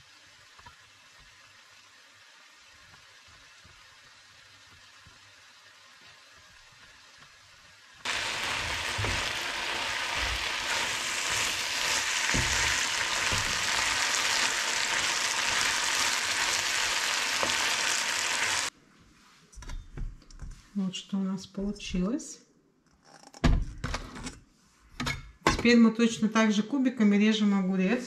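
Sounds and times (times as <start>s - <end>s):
meat sizzling in a pan: 0.0s - 18.7s
wooden spatula knocking on pan: 8.4s - 9.5s, 10.1s - 14.0s.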